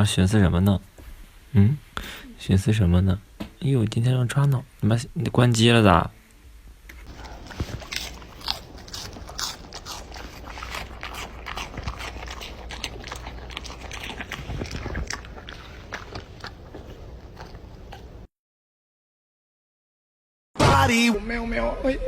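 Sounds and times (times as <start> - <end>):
animal chewing crunchy food: 7.0 - 18.3.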